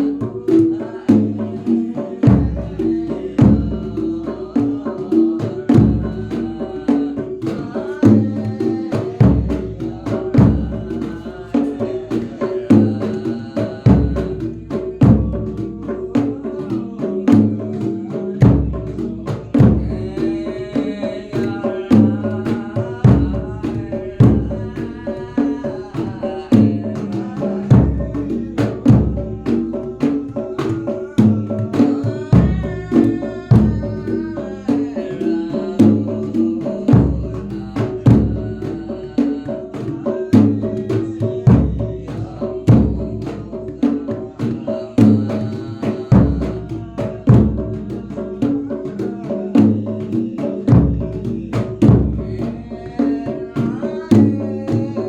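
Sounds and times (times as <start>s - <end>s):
folk percussion ensemble: 0.0s - 55.0s
bass drum beating: 23.0s - 24.8s, 26.5s - 29.8s, 31.2s - 34.2s, 46.1s - 48.0s, 50.6s - 52.4s.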